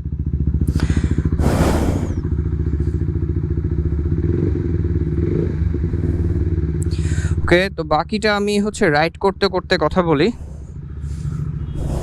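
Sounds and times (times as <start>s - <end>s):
motorcycle engine idling: 0.0s - 12.0s
brief rush of noise: 1.4s - 2.3s.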